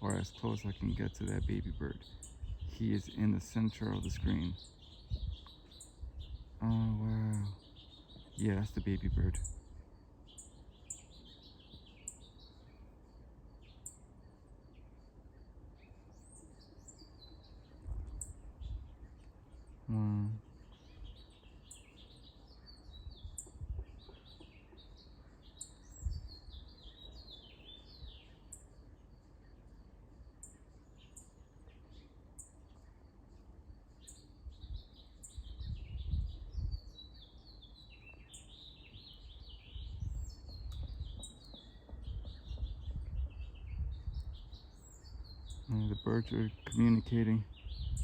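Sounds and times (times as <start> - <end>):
low rumbling microphone noise: 0.0 - 10.0, 17.6 - 21.2, 25.9 - 27.3, 34.4 - 37.0, 39.2 - 48.0
small songbirds chirping: 0.0 - 48.0.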